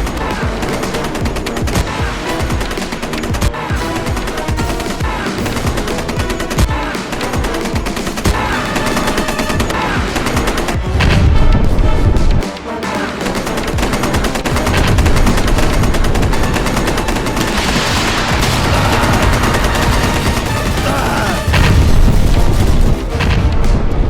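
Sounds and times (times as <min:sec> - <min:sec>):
rapid gunfire: 0:00.0 - 0:24.0.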